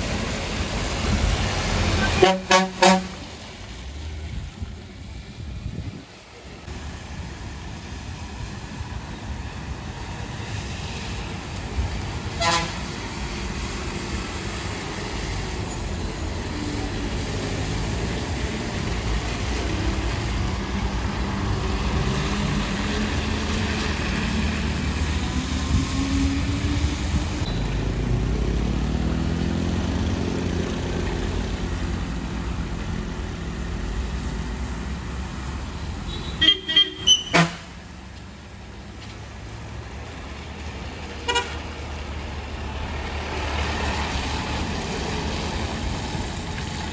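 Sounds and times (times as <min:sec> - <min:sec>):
heavy diesel engines: 0:00.0 - 0:46.9
vehicle horn toot: 0:02.1 - 0:03.2, 0:12.4 - 0:12.8, 0:36.1 - 0:37.7, 0:41.3 - 0:41.6.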